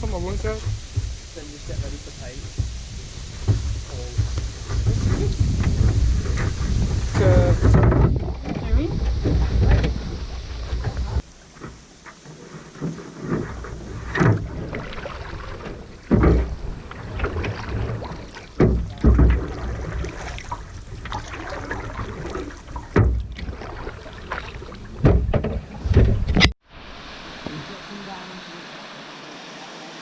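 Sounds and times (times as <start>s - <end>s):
paddles splashing in water: 0.0s - 30.0s
knocks against canoe hull: 0.2s - 10.1s, 12.8s - 23.8s, 25.0s - 26.5s.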